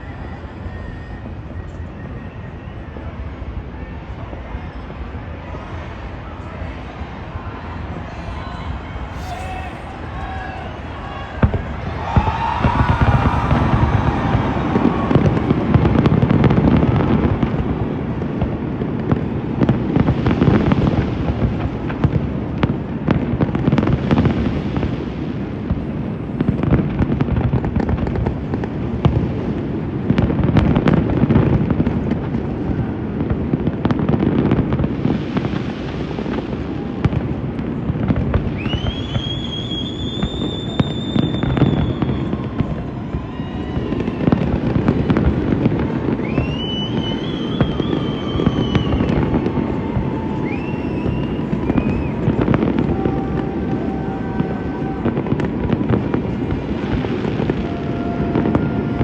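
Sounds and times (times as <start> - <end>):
high firework whistle: 0.0 - 3.3, 8.9 - 17.7, 38.4 - 56.0
fireworks bangs and crackles: 8.7 - 59.0
low fireworks booms: 8.7 - 59.0.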